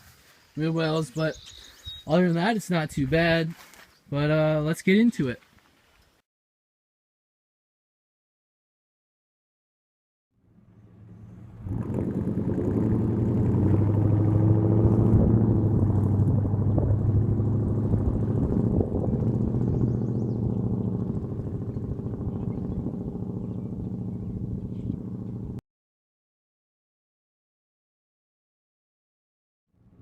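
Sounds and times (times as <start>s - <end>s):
truck engine driving by: 10.4s - 25.6s.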